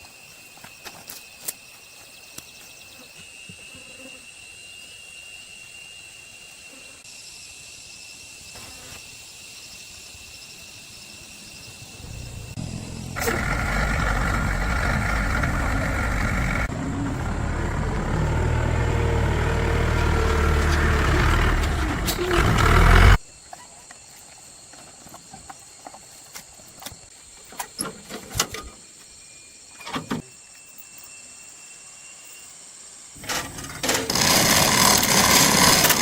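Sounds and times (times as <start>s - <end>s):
motor running with low rumble: 12.0s - 23.2s.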